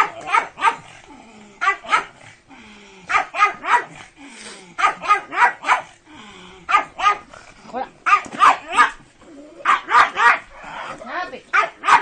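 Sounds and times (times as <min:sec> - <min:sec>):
dog barking: 0:00.0 - 0:00.9, 0:01.6 - 0:02.2, 0:03.1 - 0:04.0, 0:04.8 - 0:05.9, 0:06.7 - 0:07.3, 0:08.0 - 0:09.0, 0:09.6 - 0:10.5, 0:11.5 - 0:12.0.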